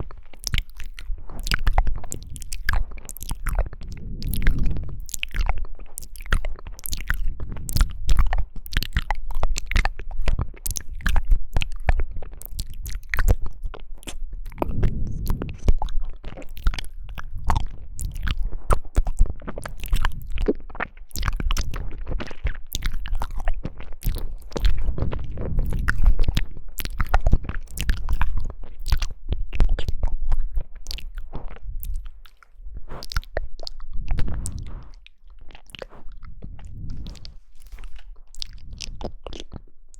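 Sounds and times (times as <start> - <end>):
person chewing jelly: 0.0 - 39.9.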